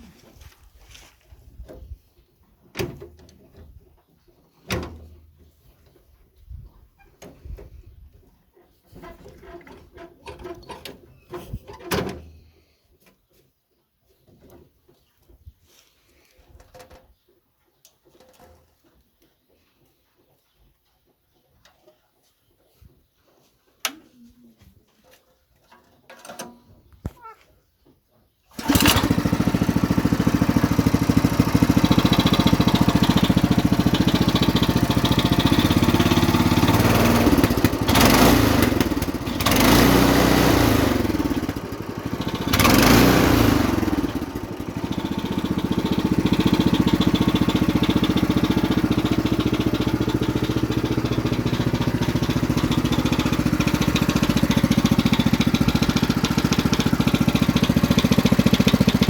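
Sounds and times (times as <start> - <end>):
tractor engine running: 28.6 - 59.0.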